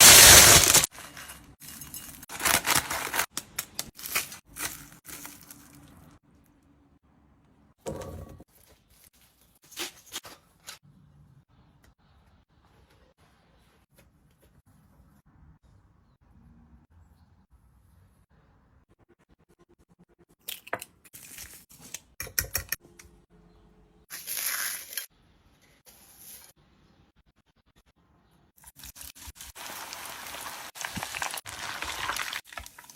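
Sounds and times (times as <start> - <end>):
rustles crinkles and clicks of handling: 0.8 - 6.6.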